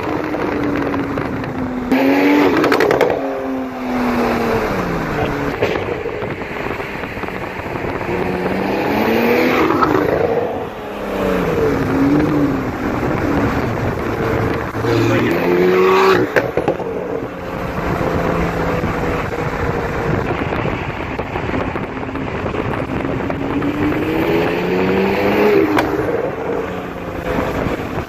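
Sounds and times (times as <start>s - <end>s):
car engine revving: 0.0s - 28.0s
exhaust pops: 0.0s - 28.0s.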